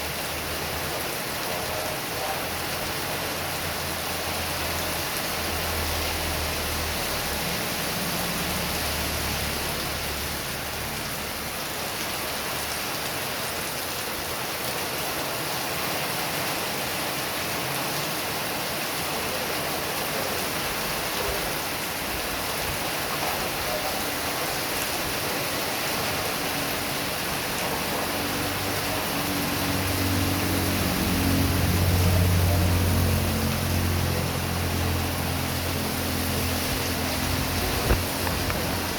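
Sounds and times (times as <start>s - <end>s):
heavy rain pouring: 0.0s - 38.9s
vehicle engine approaching: 26.2s - 38.9s.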